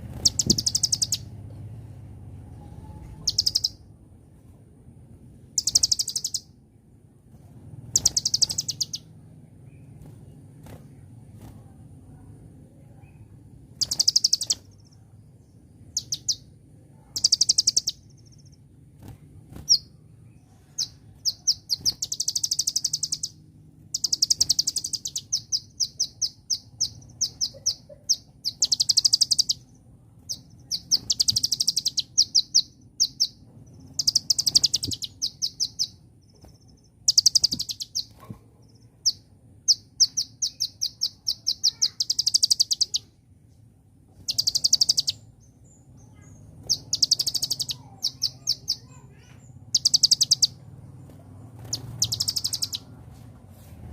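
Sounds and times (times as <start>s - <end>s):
sunbird trilling and chirping: 0.0s - 1.4s, 2.4s - 3.9s, 5.4s - 6.6s, 7.8s - 11.6s, 12.9s - 43.2s, 44.1s - 53.2s.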